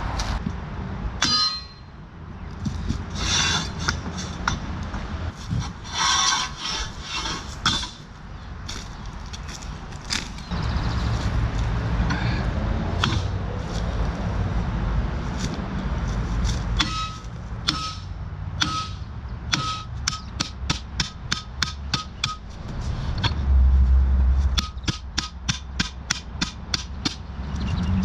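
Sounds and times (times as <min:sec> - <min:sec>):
hammer striking metal: 0:01.2 - 0:02.0, 0:13.0 - 0:13.4, 0:16.8 - 0:22.5, 0:24.6 - 0:27.3.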